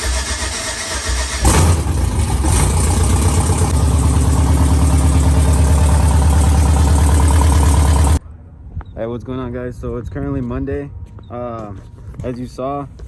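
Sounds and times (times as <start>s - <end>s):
engine running: 0.0s - 8.2s.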